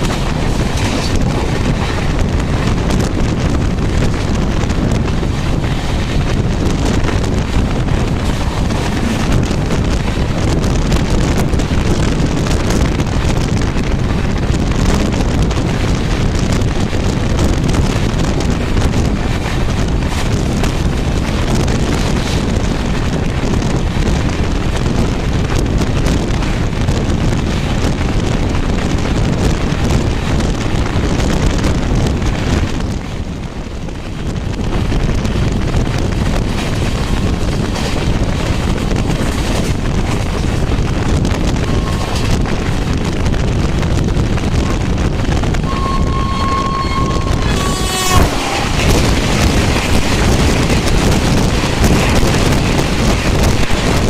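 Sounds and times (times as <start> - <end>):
rushing wind: 0.0 - 54.0
train wheels rumbling on rails: 0.0 - 54.0
short high tone: 45.6 - 49.1.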